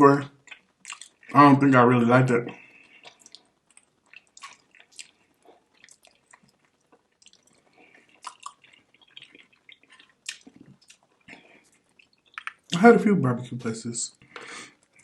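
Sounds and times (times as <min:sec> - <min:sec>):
wet chewing and lip-smacking: 0:00.4 - 0:01.3, 0:02.7 - 0:12.8.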